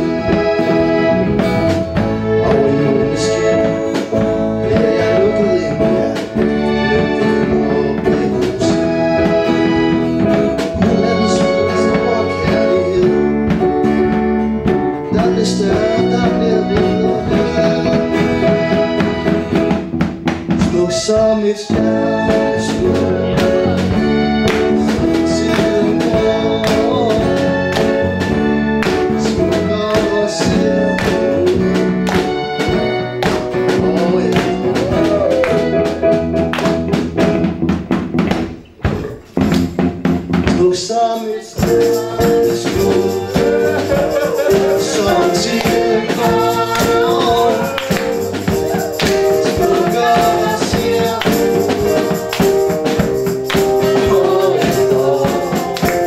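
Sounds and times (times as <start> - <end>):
tambourine keeping time: 0.0 - 37.7, 39.2 - 56.0
ensemble playing pop song: 20.7 - 56.0.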